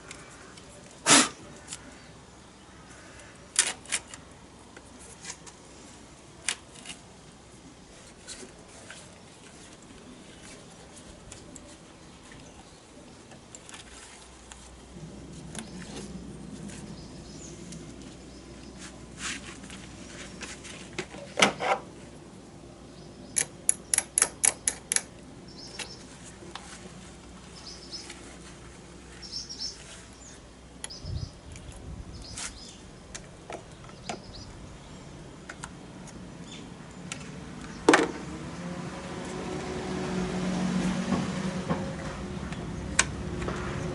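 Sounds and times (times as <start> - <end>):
sharp clicks and knocks: 23.3 - 26.6.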